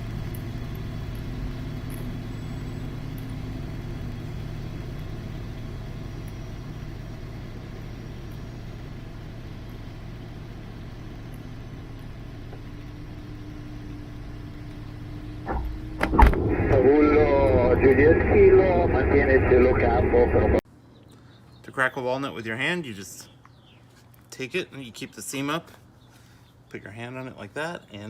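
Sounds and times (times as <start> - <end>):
low rumble of airflow: 2.3 - 20.6
faint hum: 4.1 - 21.5.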